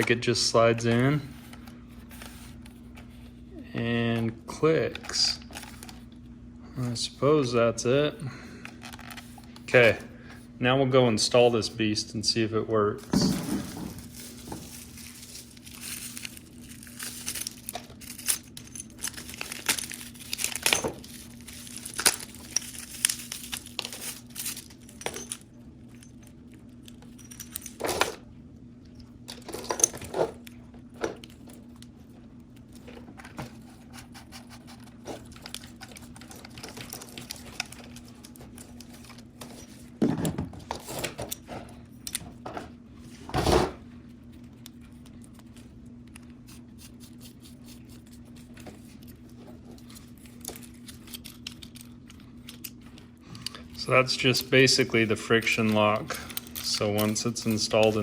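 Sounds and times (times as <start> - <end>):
steady low hum: 0.0 - 58.0
plastic packaging handling: 13.0 - 26.1.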